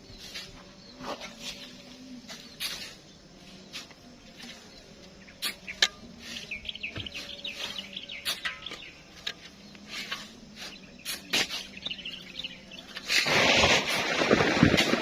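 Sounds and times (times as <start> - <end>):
birds chirping: 0.0 - 14.8
shovels scraping and knocking: 0.0 - 15.0.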